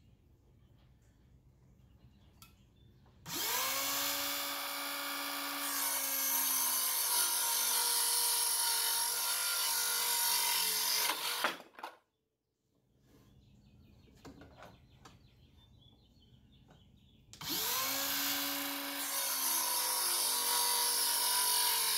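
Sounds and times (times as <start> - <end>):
circular saw cutting wood: 3.3 - 11.7, 17.4 - 21.9.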